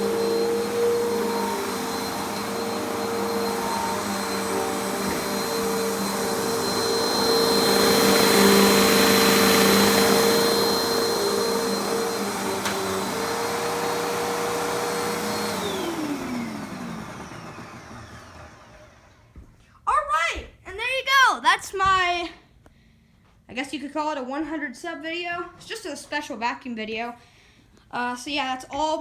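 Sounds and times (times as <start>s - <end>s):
vacuum cleaner motor whining: 0.0s - 19.5s.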